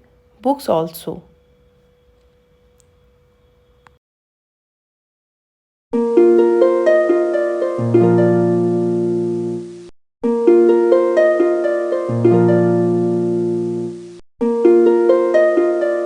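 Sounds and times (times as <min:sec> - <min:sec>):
harp-like plucked music: 0:06.2 - 0:09.0, 0:10.4 - 0:13.5, 0:14.5 - 0:16.0.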